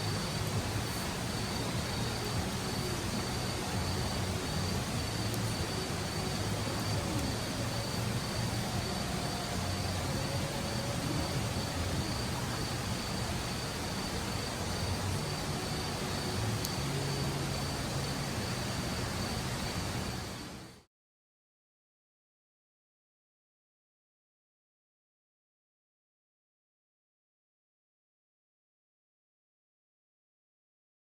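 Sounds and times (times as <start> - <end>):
low steady rumble: 0.0 - 20.8.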